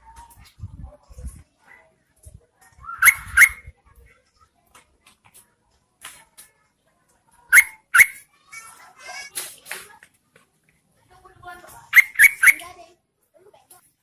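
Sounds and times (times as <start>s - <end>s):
bird calling sharp notes: 2.9s - 3.7s, 7.5s - 8.2s, 11.9s - 12.7s
bird bubbling chatter: 3.0s - 3.6s, 7.5s - 8.2s, 11.9s - 12.7s.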